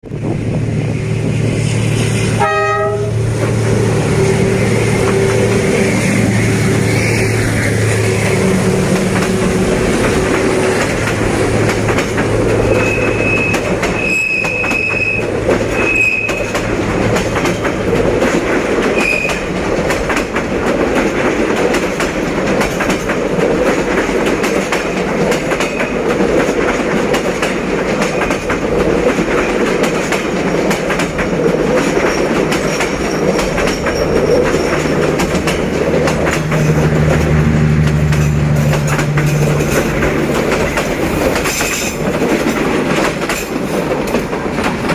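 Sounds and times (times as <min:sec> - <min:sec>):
diesel engine drone: 0:00.0 - 0:13.9, 0:34.2 - 0:41.6
train wheels clacking on rails: 0:00.1 - 0:44.9
high wheel squeals: 0:04.1 - 0:08.6, 0:12.6 - 0:16.6, 0:19.0 - 0:19.4, 0:32.0 - 0:35.5.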